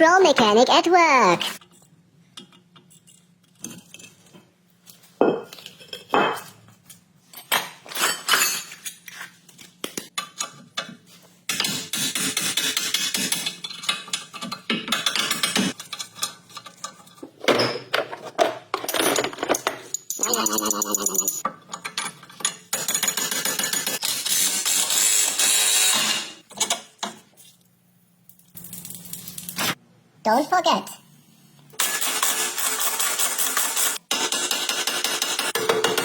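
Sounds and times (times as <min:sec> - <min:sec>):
metal tools clinking on steel: 0:18.7 - 0:22.7.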